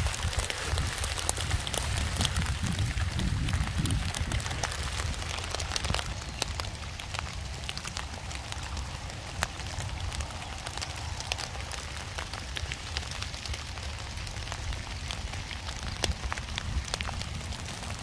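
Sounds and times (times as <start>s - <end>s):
rain hissing: 0.0s - 18.0s
raindrops ticking: 0.0s - 18.0s.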